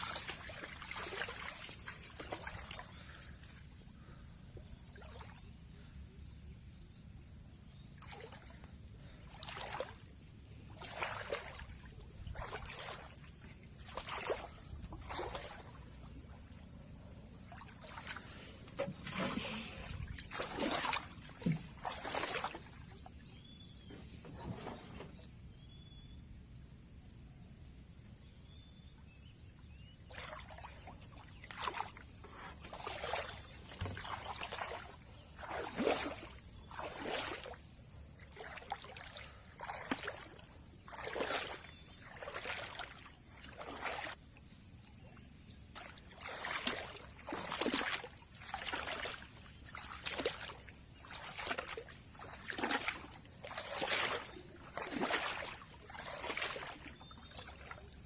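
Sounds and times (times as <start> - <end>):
rhythmic water splashing: 0.0 - 4.2, 10.6 - 23.1, 30.1 - 44.2, 45.7 - 58.0.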